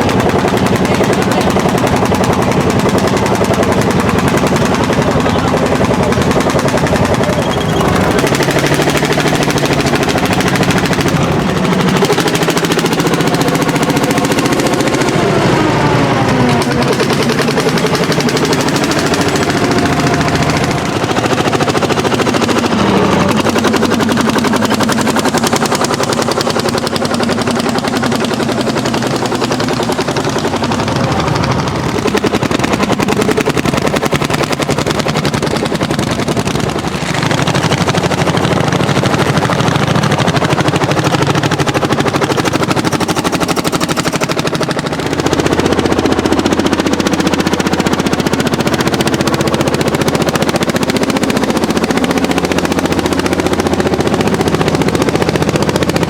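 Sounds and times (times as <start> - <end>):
diesel engine exhaust popping: 0.0 - 56.0.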